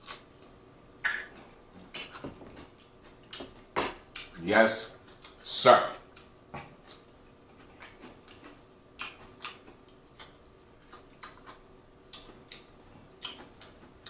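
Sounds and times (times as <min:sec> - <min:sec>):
cucumber crunching: 0:00.0 - 0:00.3, 0:01.0 - 0:14.0
wet mouth clicks: 0:01.0 - 0:02.2, 0:06.1 - 0:13.8.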